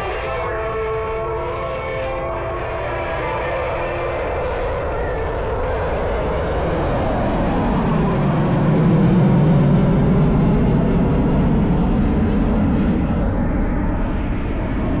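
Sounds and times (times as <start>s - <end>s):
plane engines droning past: 0.0s - 15.0s.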